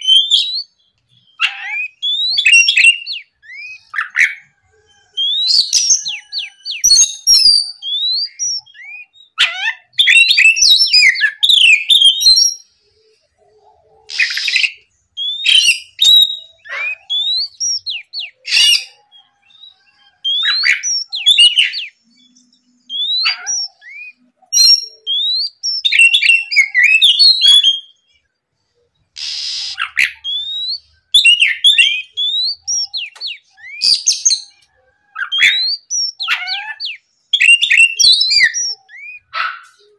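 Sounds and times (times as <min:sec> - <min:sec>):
bird whistled song: 0:00.0 - 0:13.2, 0:14.1 - 0:28.2, 0:29.0 - 0:39.9
bird harsh notes: 0:29.1 - 0:34.5.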